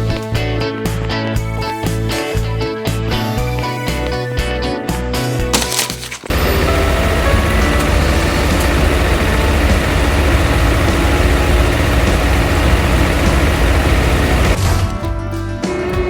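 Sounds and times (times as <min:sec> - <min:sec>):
heavy vehicle engine rumbling: 0:06.3 - 0:14.6.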